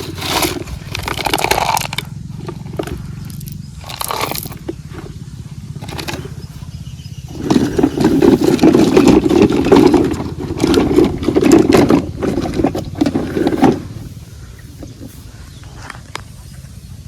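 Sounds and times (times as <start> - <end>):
knocks and rattles: 0.0 - 6.7, 7.3 - 14.0
vehicle engine throbbing: 0.0 - 17.0.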